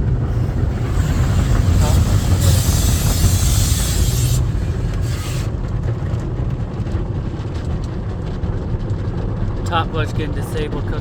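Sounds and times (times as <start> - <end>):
car wash machinery rumble: 0.0 - 11.0
spray hissing on car: 0.3 - 5.6.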